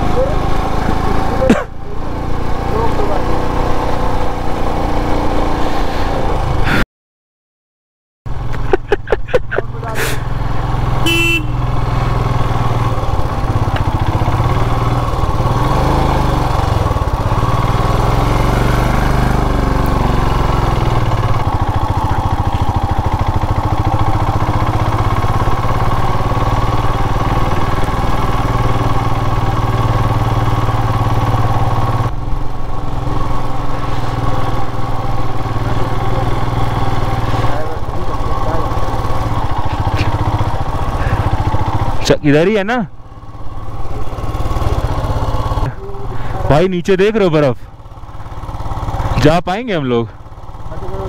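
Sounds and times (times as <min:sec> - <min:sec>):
motorcycle engine running: 0:00.0 - 0:06.8, 0:08.3 - 0:51.0
short horn beep: 0:11.0 - 0:11.8.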